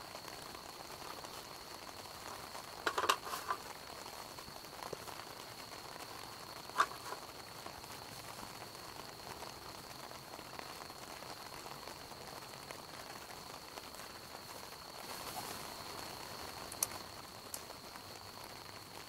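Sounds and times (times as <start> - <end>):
campfire wood crackling: 0.0 - 19.0.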